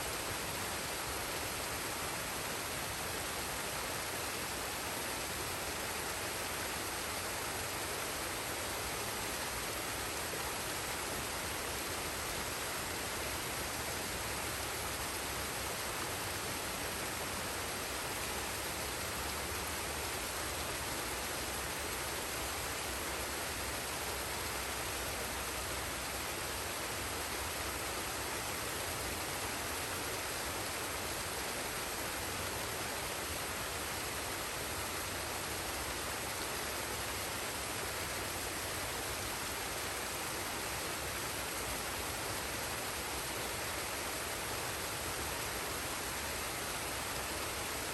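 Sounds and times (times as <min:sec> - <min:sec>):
water rushing: 0:00.0 - 0:47.9.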